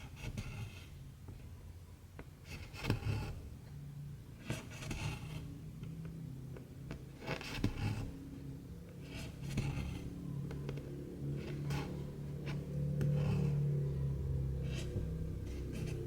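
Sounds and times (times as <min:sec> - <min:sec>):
steady low hum: 0:07.8 - 0:16.0.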